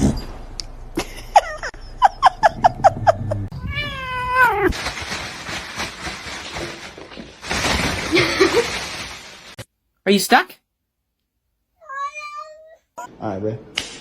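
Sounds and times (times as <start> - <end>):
cat meowing: 3.6 - 4.7, 11.8 - 13.1
cat chirping mews: 11.8 - 12.9.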